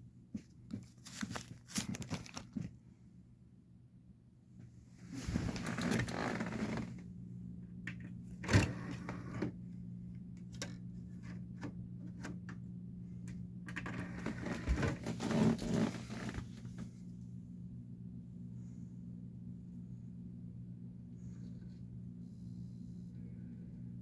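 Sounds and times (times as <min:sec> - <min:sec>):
electrical hum: 0:00.0 - 0:24.0
rustling mechanical noise: 0:04.9 - 0:07.0, 0:13.7 - 0:17.0.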